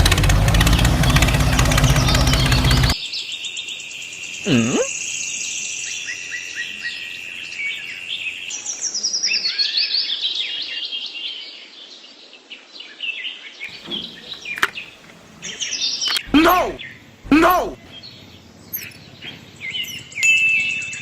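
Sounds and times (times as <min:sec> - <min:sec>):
small engine running: 0:00.0 - 0:03.0, 0:13.7 - 0:21.0
songbirds chirping: 0:00.0 - 0:21.0.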